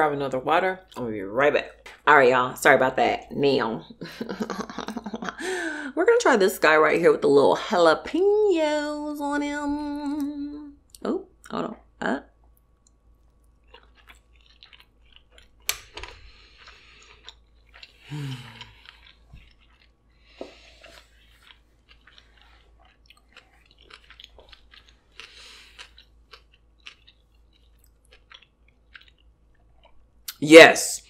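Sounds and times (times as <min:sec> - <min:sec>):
person humming: 0:09.5 - 0:11.1
chewing with wet mouth clicks: 0:12.5 - 0:30.4.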